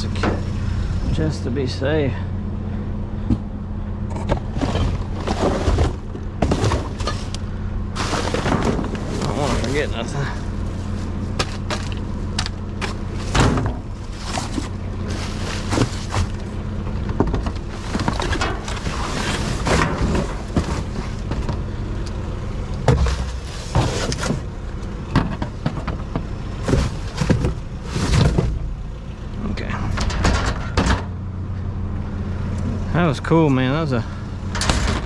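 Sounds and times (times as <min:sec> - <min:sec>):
low engine hum: 0:00.0 - 0:35.0
rustling of scrap being handled: 0:04.2 - 0:07.4, 0:08.0 - 0:21.6.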